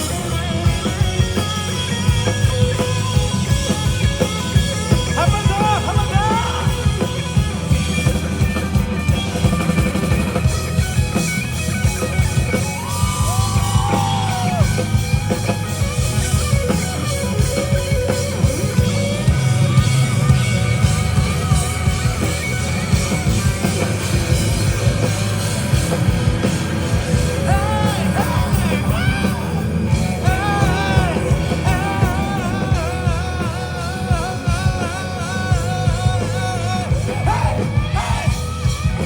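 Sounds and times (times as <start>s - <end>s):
live rock band playing: 0.0s - 39.0s
person singing: 27.4s - 38.4s.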